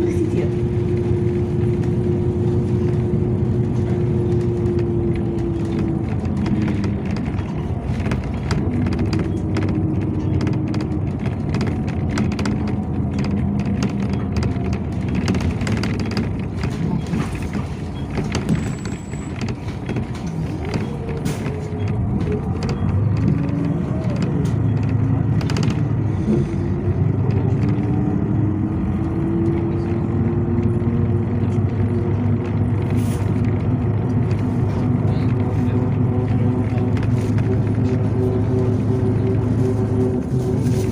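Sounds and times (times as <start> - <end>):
bus engine and road rumble: 0.0 - 40.9
drivetrain whine: 0.0 - 40.9
cabin rattles and clicks: 4.1 - 26.0.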